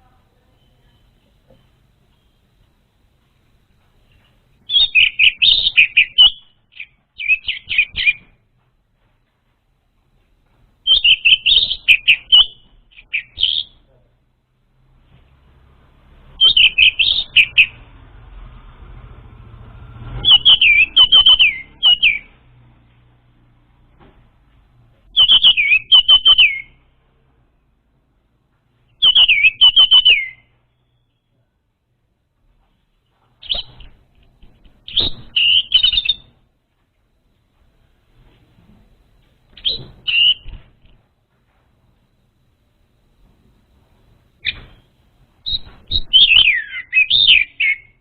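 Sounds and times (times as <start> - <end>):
thrush singing whistled notes: 4.7 - 8.3, 10.8 - 13.8, 16.3 - 18.0, 19.8 - 22.4, 25.1 - 26.8, 29.0 - 31.4, 34.9 - 36.4, 39.6 - 40.6, 44.4 - 48.0.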